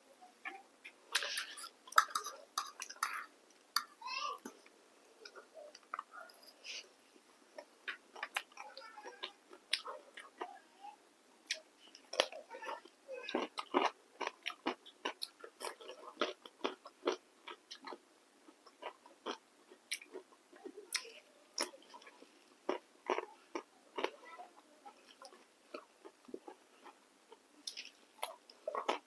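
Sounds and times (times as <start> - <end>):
biting and chewing cucumber: 11.5 - 24.2.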